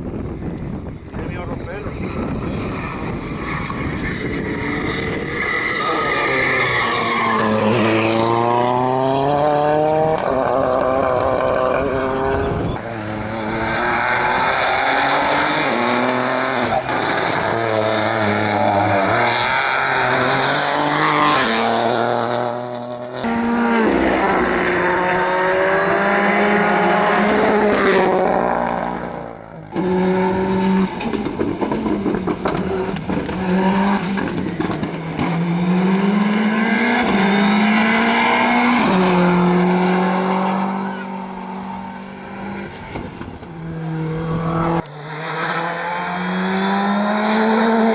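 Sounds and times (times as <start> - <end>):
rally car engines revving: 0.0 - 47.9
tyre squeal: 1.9 - 8.3, 14.1 - 21.5.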